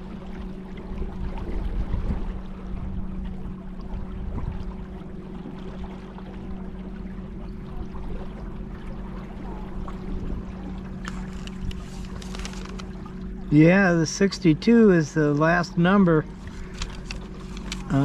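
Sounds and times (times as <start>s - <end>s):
boat motor humming: 0.0s - 18.0s
river water washing: 8.6s - 18.0s
light clicks: 16.6s - 18.0s.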